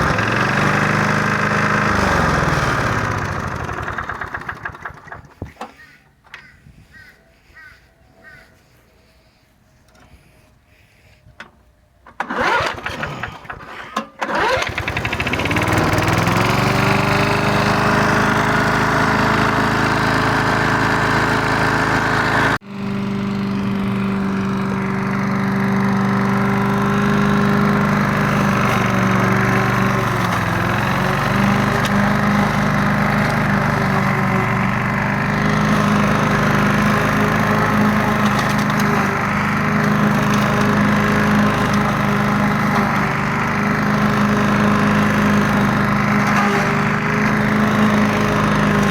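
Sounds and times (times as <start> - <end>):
lawn mower engine starting and running: 0.0 - 48.9.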